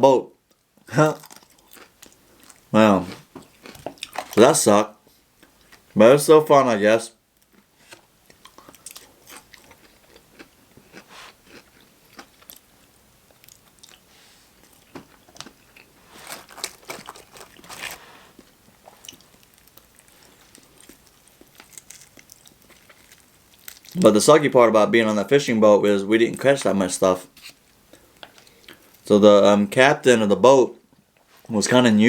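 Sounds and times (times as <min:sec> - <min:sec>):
wet chewing: 0:07.4 - 0:12.7, 0:13.3 - 0:24.2
crisp crunching bites: 0:07.5 - 0:12.7, 0:15.3 - 0:24.1.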